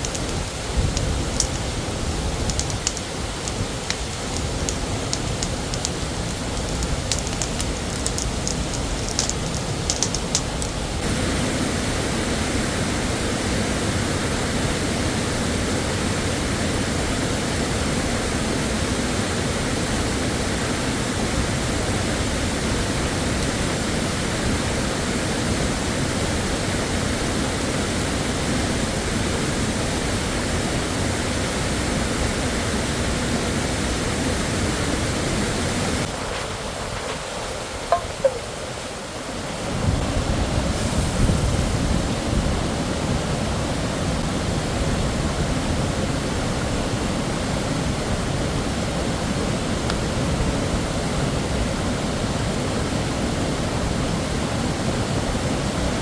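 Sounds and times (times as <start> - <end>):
sharp clicks: 0.0 - 1.7, 2.4 - 10.8
waterfall rushing: 0.0 - 44.7.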